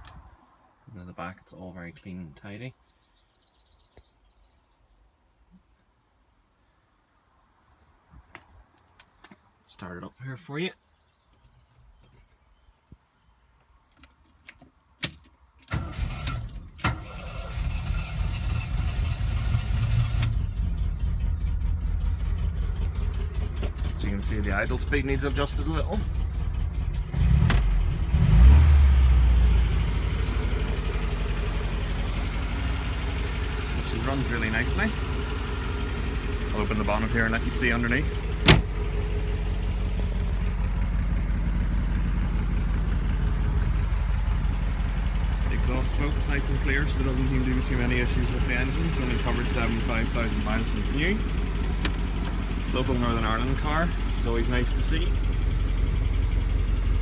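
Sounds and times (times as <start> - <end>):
car engine starting and idling: 15.6 - 57.0
ignition key clicks: 38.4 - 38.8, 51.7 - 52.4
sharp clunk: 38.4 - 38.8.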